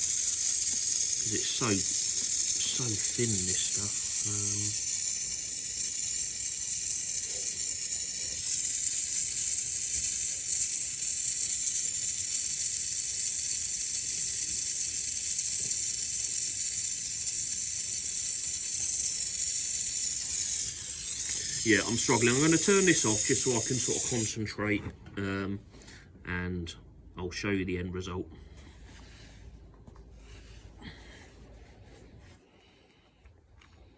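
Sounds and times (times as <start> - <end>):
torch flame hissing: 0.0 - 24.4.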